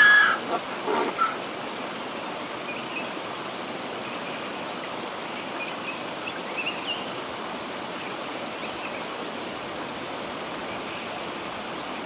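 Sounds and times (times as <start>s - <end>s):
donkey braying: 0.0s - 1.4s
steady outdoor hiss: 0.0s - 12.0s.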